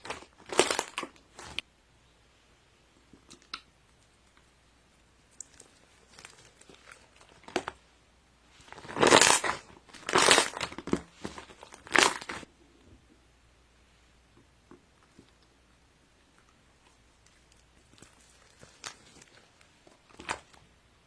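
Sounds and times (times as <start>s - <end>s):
crinkly material rustling: 0.0s - 1.6s, 5.1s - 12.5s, 16.4s - 20.8s.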